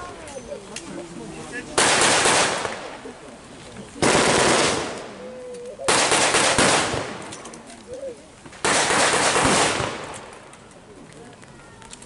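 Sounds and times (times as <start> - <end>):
blank gunfire bursts: 1.8 - 2.8, 4.0 - 5.0, 5.9 - 7.2, 8.6 - 10.2.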